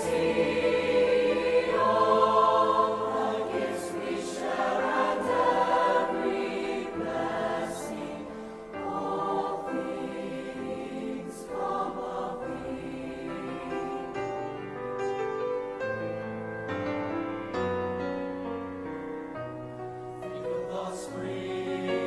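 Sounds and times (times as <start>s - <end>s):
choir singing: 0.0s - 14.8s, 20.2s - 22.0s.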